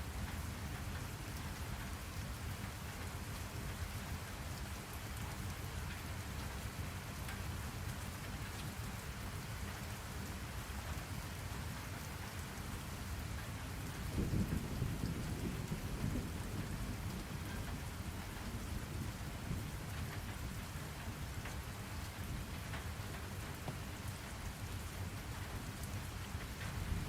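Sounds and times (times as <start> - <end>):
steady rain falling: 0.0 - 27.0
low rumble of thunder: 13.7 - 27.0.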